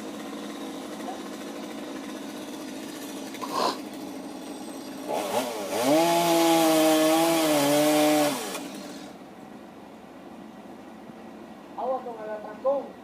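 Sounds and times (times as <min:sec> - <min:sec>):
chainsaw revving: 0:00.0 - 0:09.2.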